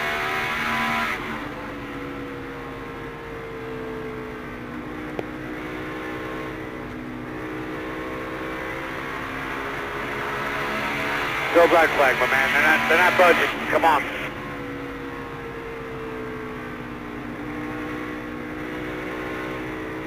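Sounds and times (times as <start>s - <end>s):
race car engine running: 0.0s - 20.0s.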